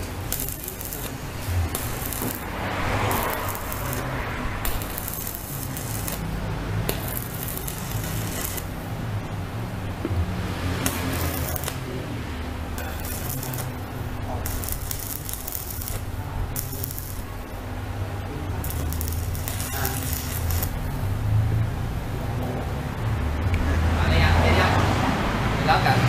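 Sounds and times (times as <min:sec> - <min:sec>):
rattling and scraping of leads: 0:00.0 - 0:06.3, 0:06.9 - 0:08.7, 0:10.7 - 0:12.0, 0:12.7 - 0:17.4, 0:18.6 - 0:20.8
welding machine humming: 0:00.0 - 0:23.3.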